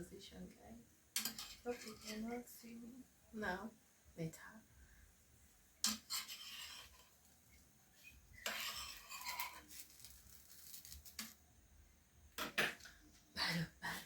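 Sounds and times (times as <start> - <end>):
dishes and cutlery clinking: 1.2 - 2.2, 5.8 - 7.2, 8.4 - 9.8.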